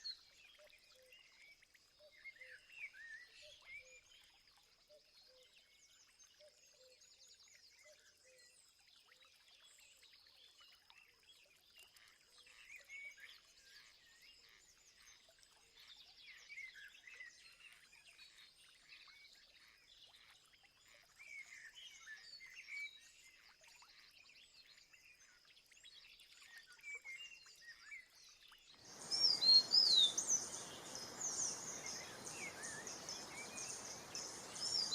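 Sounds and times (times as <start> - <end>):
small birds chirping: 28.8 - 34.9.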